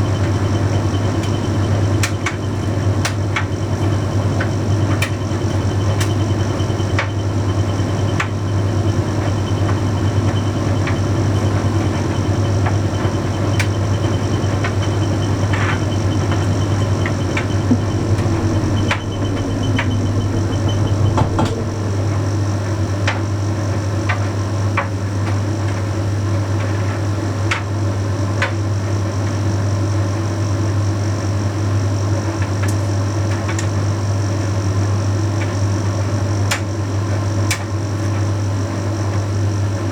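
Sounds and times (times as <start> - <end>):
tumble dryer running: 0.0 - 25.6.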